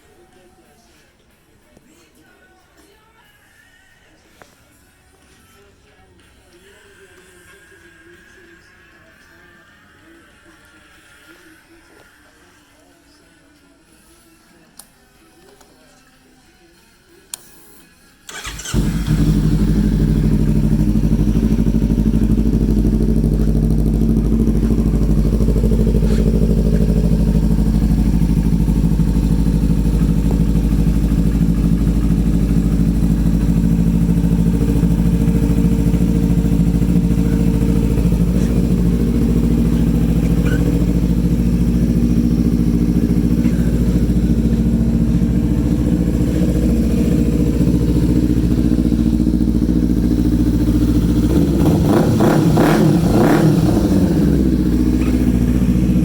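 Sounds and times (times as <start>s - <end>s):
motorcycle engine starting and idling: 18.3s - 56.0s.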